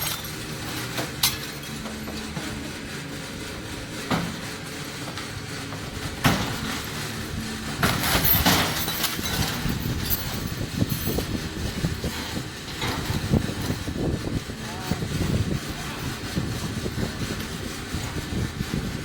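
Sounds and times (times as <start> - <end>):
debris clattering and crashing: 0.0 - 2.4, 6.1 - 13.8
tractor engine rumble: 0.0 - 19.0.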